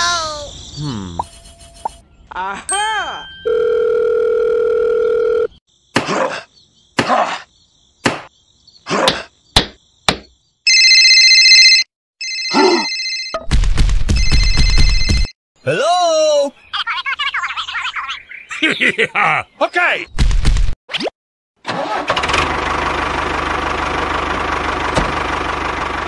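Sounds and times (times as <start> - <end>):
telephone ringing: 3.4 - 5.6, 10.7 - 13.4, 14.2 - 15.3
sharp knocks: 9.1 - 10.3.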